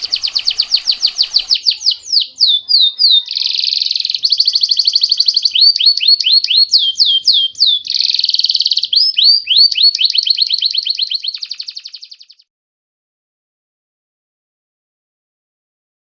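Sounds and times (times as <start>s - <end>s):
bird rattling trills and whistles: 0.0s - 2.0s.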